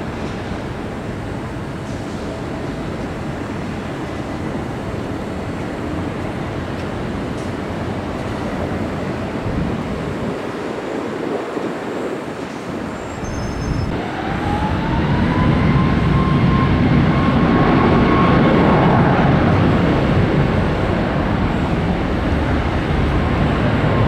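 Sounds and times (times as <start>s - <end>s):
jet engines roaring: 0.0s - 24.0s
rising engine whine: 13.7s - 24.0s.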